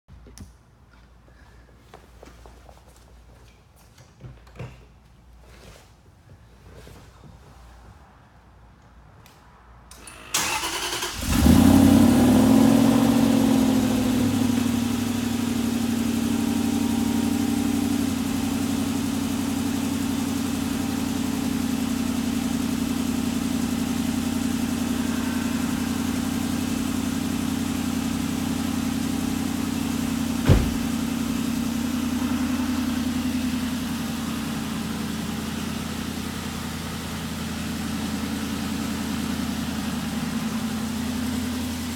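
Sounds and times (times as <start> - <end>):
car engine revving and idling: 10.2 - 41.9
sharp thump: 30.4 - 31.0.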